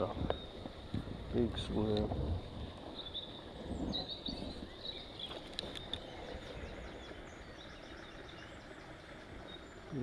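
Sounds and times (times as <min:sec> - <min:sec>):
low outdoor background: 0:00.0 - 0:10.0
small birds chirping: 0:00.0 - 0:10.0
faint sharp clicks: 0:01.9 - 0:02.1.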